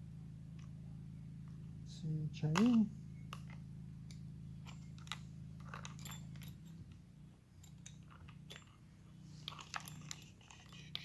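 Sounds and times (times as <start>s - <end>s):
low hum: 0.0s - 11.0s
saw chain rattling: 4.6s - 11.0s.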